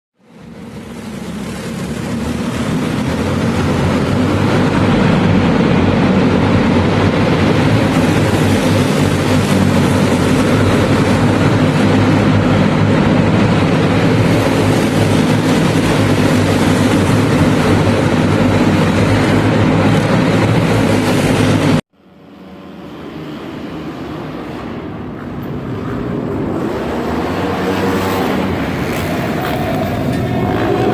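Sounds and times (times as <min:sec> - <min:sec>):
racing car engines at high revs: 0:00.4 - 0:30.9.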